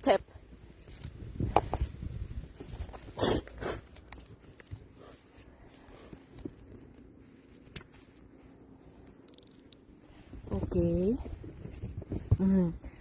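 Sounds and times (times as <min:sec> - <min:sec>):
crunching rustling noises: 0:00.0 - 0:13.0
faint handling noise: 0:03.8 - 0:13.0.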